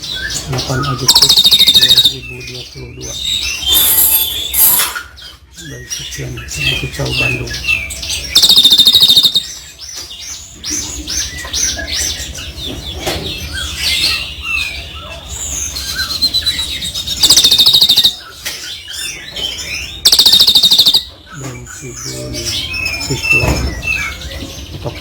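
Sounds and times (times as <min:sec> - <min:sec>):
songbird chirps and whistles: 0:00.0 - 0:12.2, 0:15.4 - 0:24.4
bird rattling trills: 0:01.0 - 0:02.2, 0:03.3 - 0:05.2, 0:08.2 - 0:09.6, 0:15.5 - 0:21.2.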